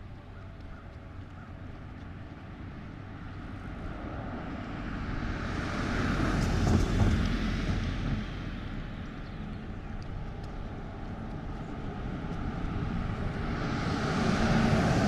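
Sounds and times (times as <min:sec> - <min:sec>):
vehicle passing: 0:10.2 - 0:15.0.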